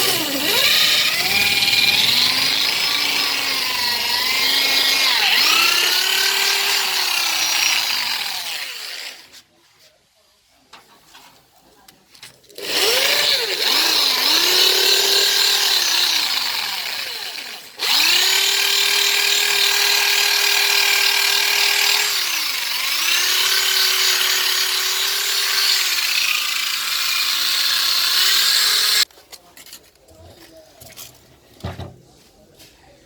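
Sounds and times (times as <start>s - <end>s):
electric rotary tool grinding metal: 0.0s - 9.3s, 12.6s - 29.1s.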